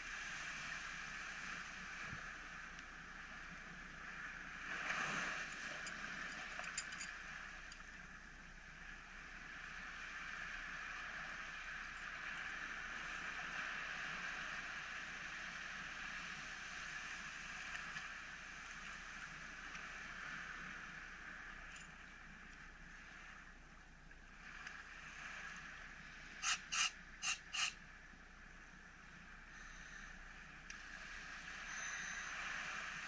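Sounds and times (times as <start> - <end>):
muffled waves breaking on rocks: 0.0 - 7.8.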